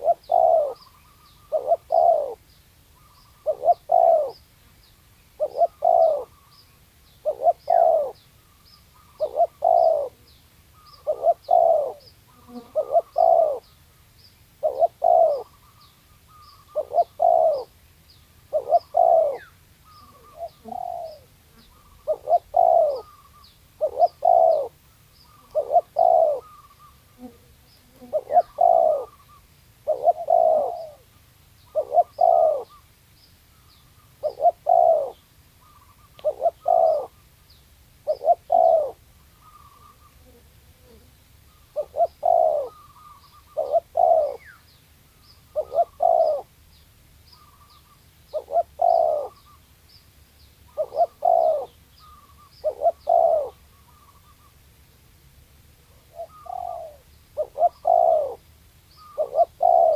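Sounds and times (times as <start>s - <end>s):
dove cooing: 0.0s - 4.4s, 5.4s - 6.6s, 7.2s - 8.2s, 9.0s - 13.7s, 14.5s - 17.8s, 18.5s - 27.4s, 28.0s - 32.9s, 34.0s - 37.2s, 38.0s - 44.6s, 45.4s - 46.6s, 47.4s - 49.6s, 50.7s - 54.6s, 55.8s - 59.9s.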